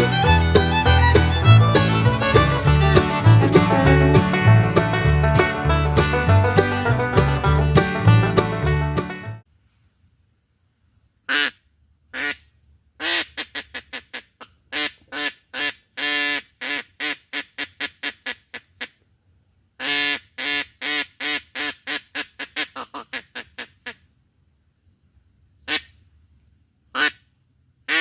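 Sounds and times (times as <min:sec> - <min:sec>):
duck quacking: 0:00.0 - 0:09.2, 0:11.3 - 0:19.0, 0:19.8 - 0:24.0, 0:25.7 - 0:26.0, 0:26.9 - 0:27.3.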